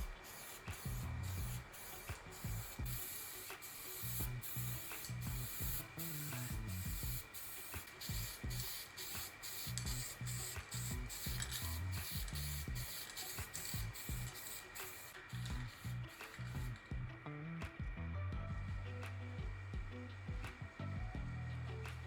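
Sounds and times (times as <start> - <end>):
paint spraying hiss: 0.0 - 17.0
background music with beat: 0.0 - 22.0.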